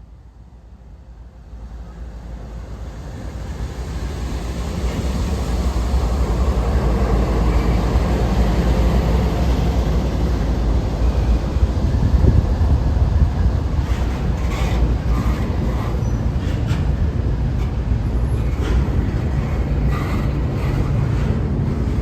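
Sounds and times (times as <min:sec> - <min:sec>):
train rumbling past: 0:00.0 - 0:22.0.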